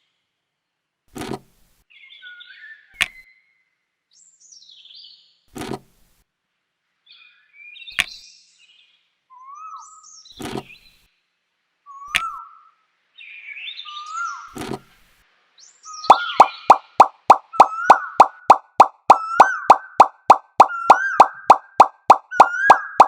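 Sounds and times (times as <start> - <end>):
birds chirping: 15.9 - 23.0
rapid loud popping: 16.1 - 23.0.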